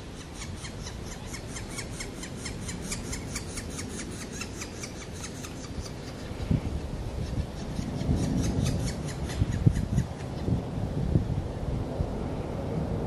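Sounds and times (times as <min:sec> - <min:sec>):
bird calling repeated notes: 0:00.0 - 0:06.3.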